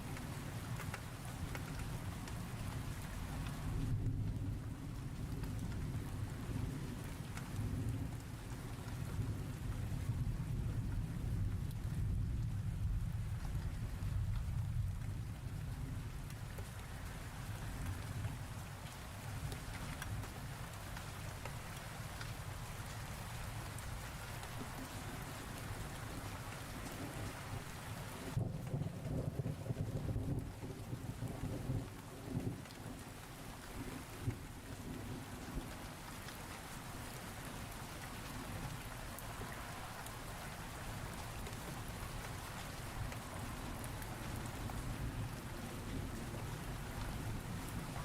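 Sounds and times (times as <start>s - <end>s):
rain falling: 0.0s - 48.0s
low thunder rumble: 28.3s - 33.0s.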